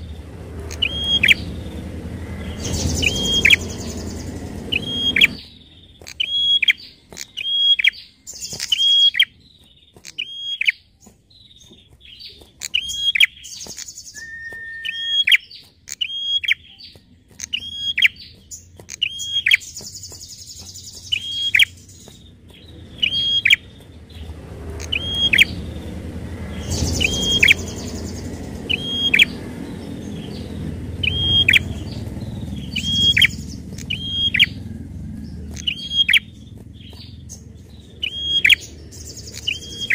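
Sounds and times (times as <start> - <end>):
low rumble: 0.0 - 6.0, 20.1 - 39.9.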